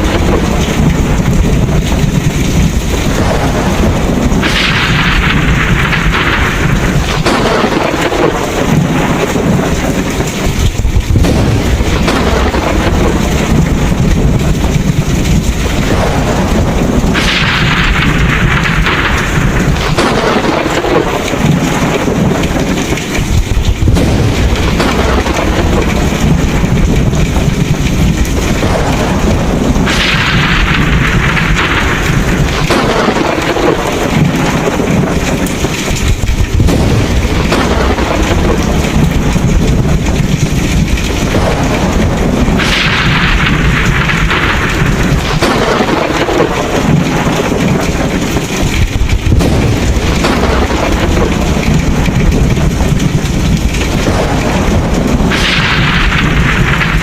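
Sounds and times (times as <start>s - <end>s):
heavy rain: 0.0s - 57.0s
low rolling thunder: 0.0s - 57.0s.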